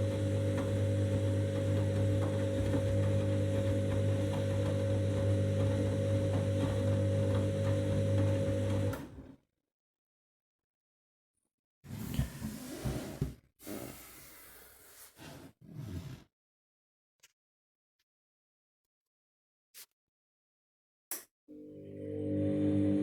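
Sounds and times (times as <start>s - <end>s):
washing machine motor hum: 0.0s - 9.3s, 21.5s - 23.0s.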